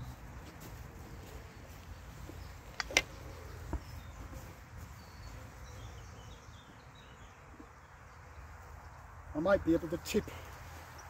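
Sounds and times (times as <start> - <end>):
honeybees humming: 0.0 - 11.0
small birds chirping: 0.0 - 11.0
hive frames clicking: 2.2 - 3.9.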